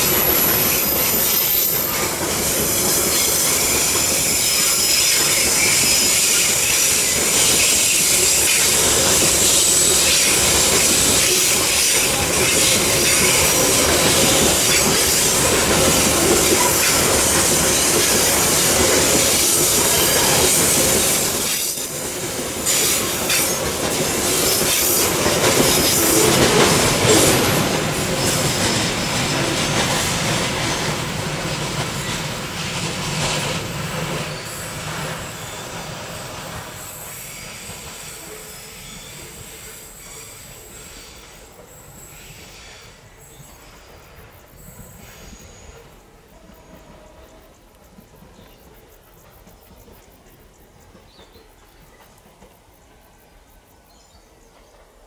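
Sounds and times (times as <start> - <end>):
wagons rolling on rails: 0.0 - 36.9
steel wheels squealing: 0.0 - 46.0.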